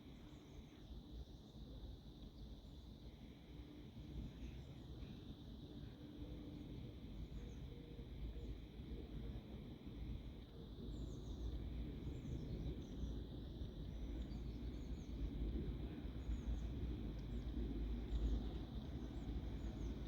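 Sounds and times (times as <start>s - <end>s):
faint bird chirps: 0.0s - 20.0s
faint high hum: 0.0s - 20.0s
wind rumbling on microphone: 5.8s - 20.0s.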